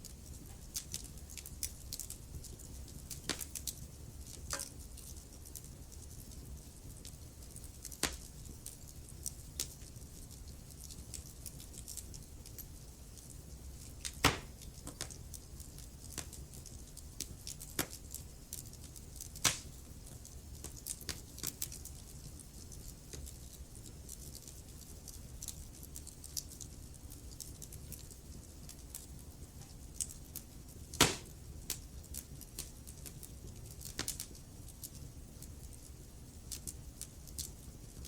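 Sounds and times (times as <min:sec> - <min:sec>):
wood fire crackling: 0:00.0 - 0:38.0
loud fire pops: 0:14.0 - 0:15.2, 0:19.4 - 0:19.8, 0:30.9 - 0:31.8.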